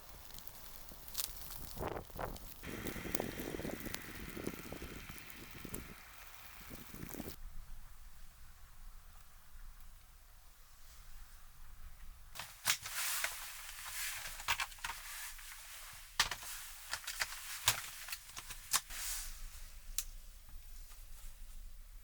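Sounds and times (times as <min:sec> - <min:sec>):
rustling: 0:00.0 - 0:07.4, 0:12.4 - 0:20.0.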